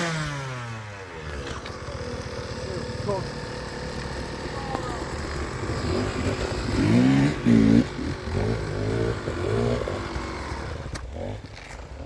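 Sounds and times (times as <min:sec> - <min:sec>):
dirt bike engine revving: 0:00.0 - 0:11.5.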